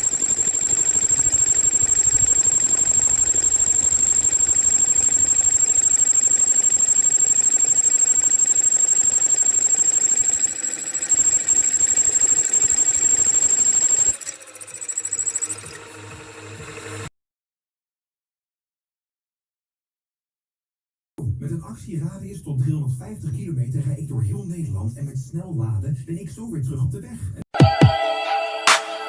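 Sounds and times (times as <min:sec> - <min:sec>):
boring machine whining: 0:00.0 - 0:17.1.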